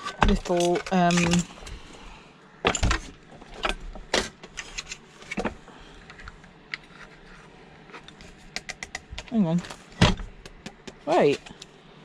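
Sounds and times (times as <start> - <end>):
screwdriver and metal parts clinking: 0.0 - 1.5.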